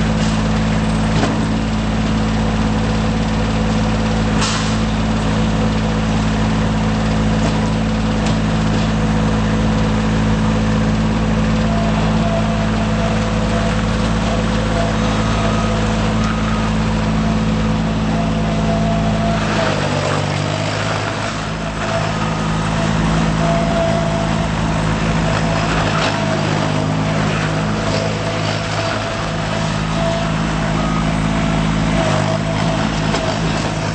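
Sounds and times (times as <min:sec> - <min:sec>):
diesel engine running: 0:00.0 - 0:33.9
high tone: 0:11.6 - 0:33.9.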